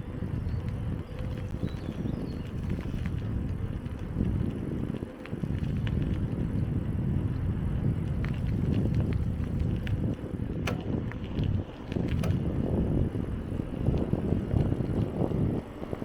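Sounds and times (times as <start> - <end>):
bicycle tyres rumbling on dirt: 0.0 - 16.0
small clicks and rattles: 8.1 - 16.0.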